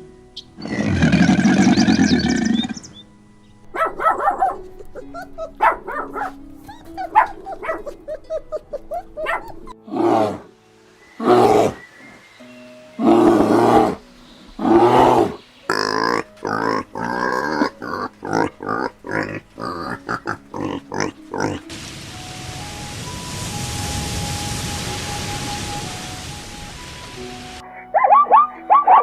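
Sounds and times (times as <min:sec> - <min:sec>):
loud animal calls: 0:00.4 - 0:03.0, 0:13.0 - 0:21.7
big cat roaring: 0:00.6 - 0:02.9, 0:09.8 - 0:10.5, 0:13.0 - 0:14.0, 0:14.6 - 0:21.6.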